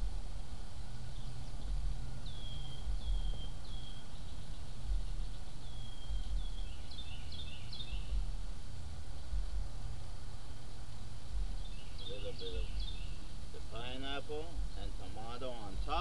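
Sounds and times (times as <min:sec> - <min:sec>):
steady low rumble: 0:00.0 - 0:16.0
bird calls: 0:00.7 - 0:08.4, 0:11.3 - 0:16.0.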